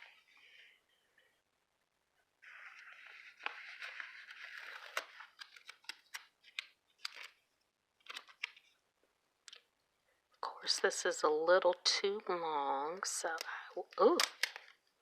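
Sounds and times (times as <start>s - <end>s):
paper rustling: 2.4s - 8.8s
light clicks and crinkles: 2.4s - 9.9s, 13.0s - 15.0s.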